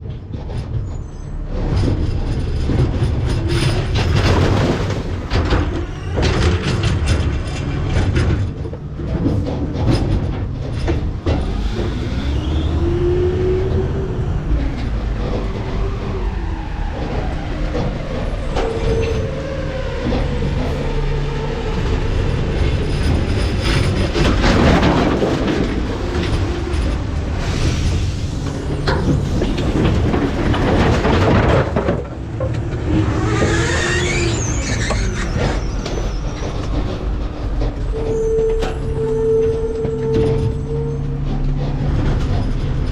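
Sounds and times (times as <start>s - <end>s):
truck engine rumble: 0.0s - 42.9s
hydraulic packer whine: 0.8s - 42.9s
trash crashing into hopper: 2.7s - 13.2s, 23.7s - 34.0s.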